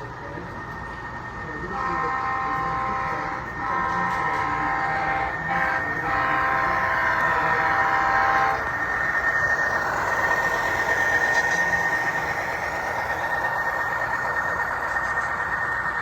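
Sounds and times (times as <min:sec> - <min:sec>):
train rumbling past: 0:00.0 - 0:16.0
locomotive air horn blasts: 0:01.7 - 0:08.6.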